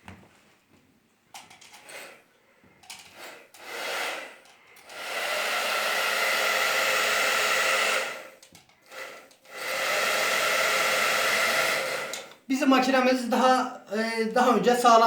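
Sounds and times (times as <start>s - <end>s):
hair dryer running: 3.1s - 12.4s.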